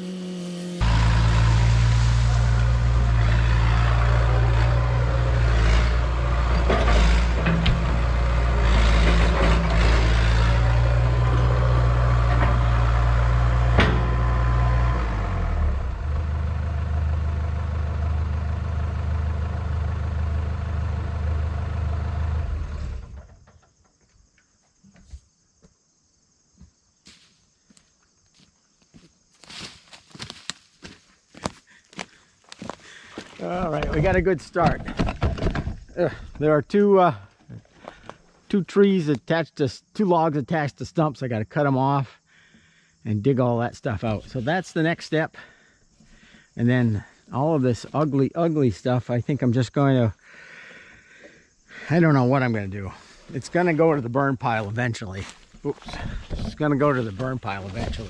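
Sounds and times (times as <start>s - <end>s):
excavator diesel engine: 0.0s - 23.4s, 51.8s - 58.0s
knocks and clanks: 4.4s - 11.6s, 13.6s - 14.4s, 33.8s - 36.4s.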